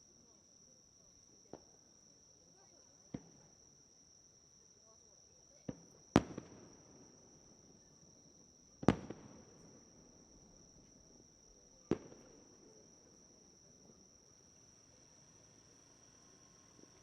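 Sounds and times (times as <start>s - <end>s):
small fireworks pops: 1.4s - 1.8s, 3.1s - 3.6s, 5.6s - 7.3s, 8.8s - 17.0s
high-pitched insect trill: 13.1s - 17.0s.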